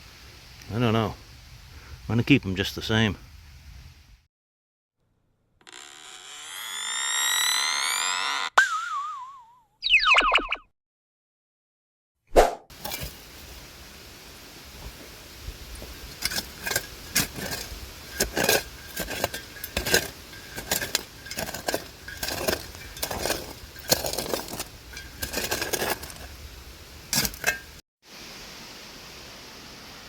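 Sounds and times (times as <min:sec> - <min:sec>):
digging tool scraping debris: 0:12.8 - 0:13.2, 0:15.7 - 0:27.8
clinks of glass and metal: 0:16.1 - 0:26.2.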